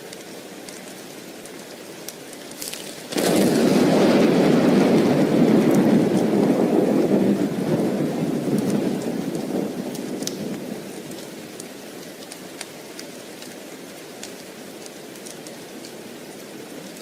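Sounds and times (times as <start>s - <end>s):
steady rain: 0.0s - 17.0s
thunder rumbling: 2.8s - 11.6s.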